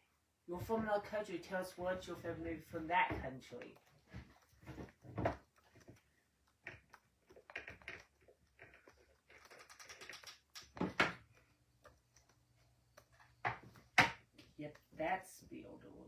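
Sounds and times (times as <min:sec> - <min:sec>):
light clicks and taps: 0:03.2 - 0:15.0.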